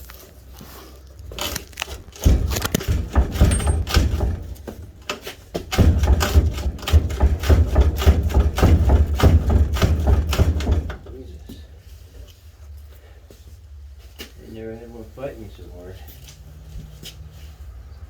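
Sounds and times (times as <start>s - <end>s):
heavy thumping: 1.3s - 11.2s
metal bumper clunking and rattling: 1.3s - 11.2s.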